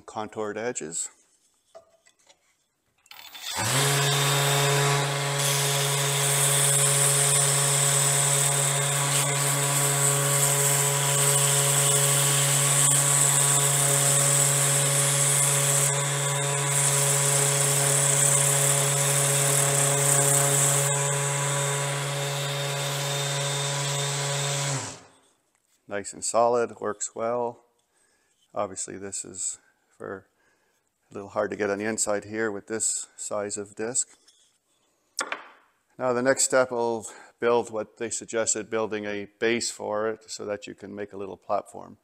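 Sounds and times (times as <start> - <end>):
orbit sander running: 3.3 - 25.2.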